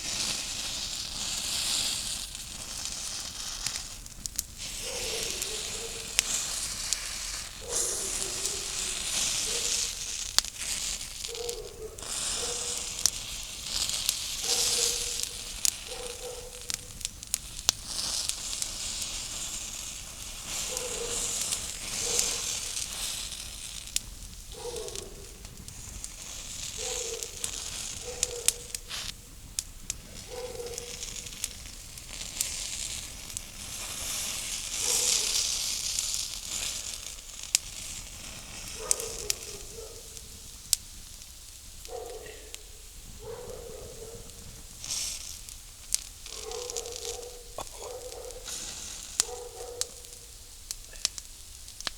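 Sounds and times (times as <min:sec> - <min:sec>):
fire crackling and popping: 0:00.0 - 0:51.9
food sizzling: 0:00.0 - 0:51.9.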